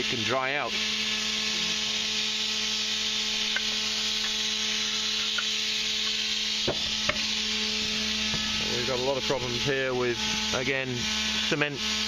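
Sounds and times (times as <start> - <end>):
machinery hissing: 3.2 - 11.7.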